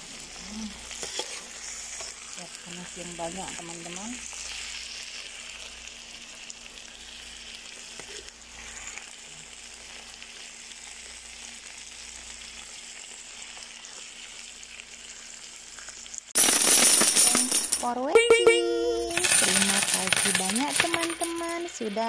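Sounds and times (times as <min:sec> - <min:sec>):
food sizzling in a wok: 0:00.0 - 0:16.4, 0:21.6 - 0:22.0.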